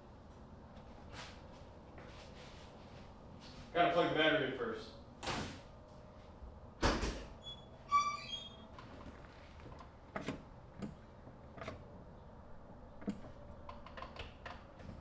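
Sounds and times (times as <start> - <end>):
brief high squeak: 7.4 - 8.6.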